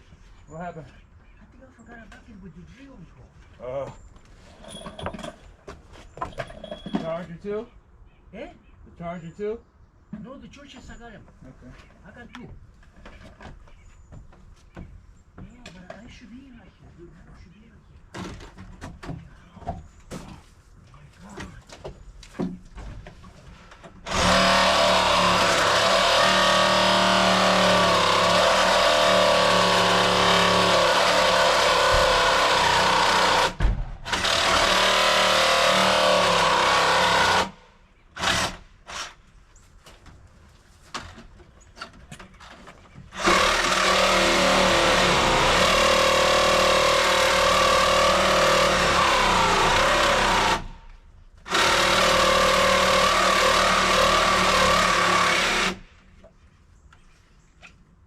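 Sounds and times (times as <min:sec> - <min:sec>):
electric power tool running: 0:24.1 - 0:37.6, 0:43.2 - 0:50.8, 0:51.5 - 0:55.8.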